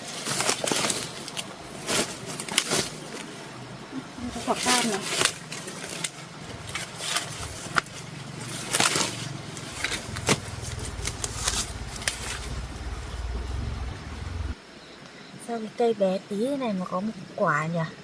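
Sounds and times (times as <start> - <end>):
leaves and stems rustling: 0.0 - 14.6
low rumble: 9.5 - 14.6.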